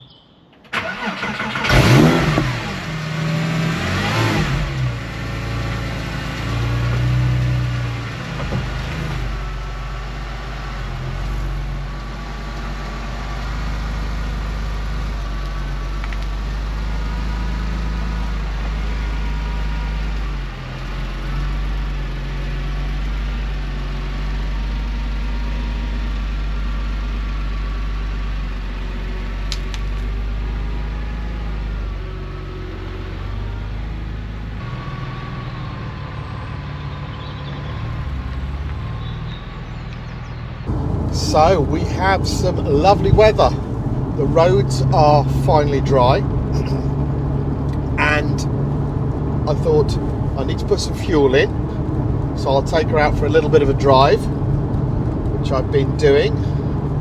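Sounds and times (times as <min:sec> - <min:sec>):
car engine revving: 0:00.8 - 0:10.9, 0:40.7 - 0:57.0.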